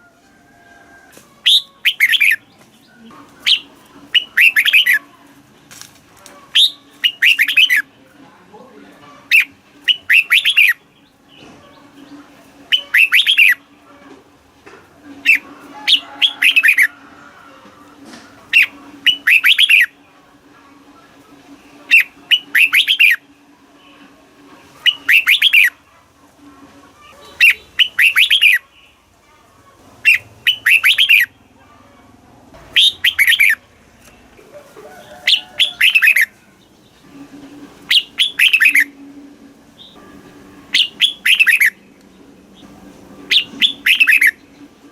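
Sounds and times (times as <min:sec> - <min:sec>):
bulbul singing: 0:01.4 - 0:05.0, 0:06.5 - 0:08.0, 0:09.2 - 0:13.8, 0:15.1 - 0:16.9, 0:18.5 - 0:20.1, 0:21.8 - 0:24.0, 0:24.8 - 0:25.8, 0:27.2 - 0:29.0, 0:30.0 - 0:31.6, 0:32.6 - 0:34.2, 0:35.0 - 0:44.9.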